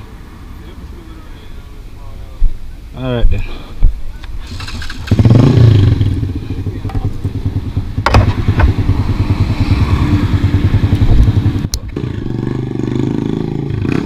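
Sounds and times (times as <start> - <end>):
sharp knock: 8.0 - 9.1.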